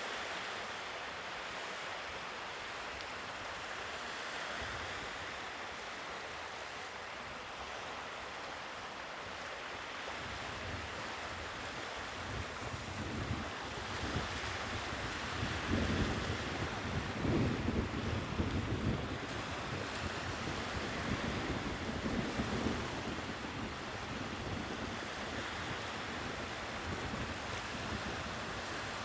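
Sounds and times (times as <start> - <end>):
sea waves washing ashore: 0.0 - 29.0
wind buffeting microphone: 12.1 - 29.0.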